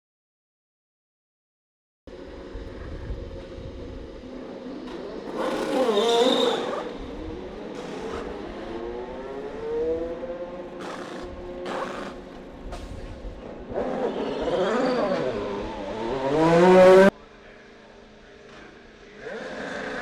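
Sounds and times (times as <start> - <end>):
race car engines at speed: 2.1 - 17.2
race car passing by: 2.1 - 17.2
wind buffeting microphone: 2.2 - 4.5, 6.8 - 9.0, 11.2 - 14.6.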